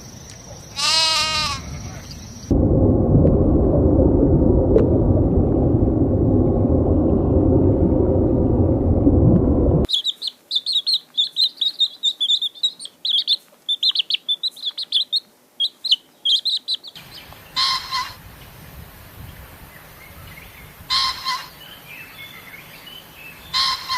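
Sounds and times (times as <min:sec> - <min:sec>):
loud low rumble: 0:02.5 - 0:09.9
small bird chirping rapidly: 0:09.9 - 0:17.3.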